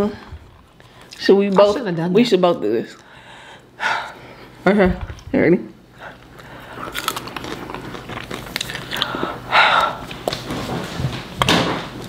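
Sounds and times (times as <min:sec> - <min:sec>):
people chewing popcorn: 0:00.3 - 0:01.7, 0:05.9 - 0:12.0.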